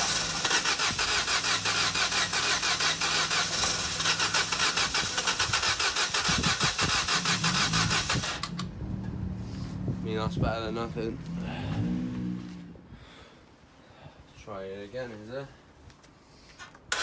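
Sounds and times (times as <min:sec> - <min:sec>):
engine cranking on starter motor: 0:00.0 - 0:09.1.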